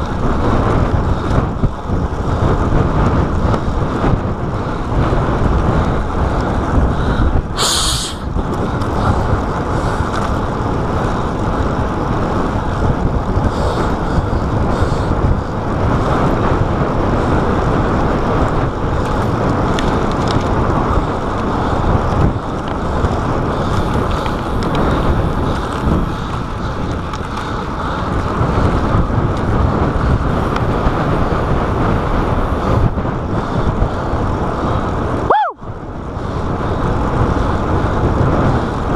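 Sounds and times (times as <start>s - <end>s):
loud wind rush: 0.0s - 38.9s
road and traffic noise: 0.0s - 38.9s
short high hiss: 7.6s - 8.3s.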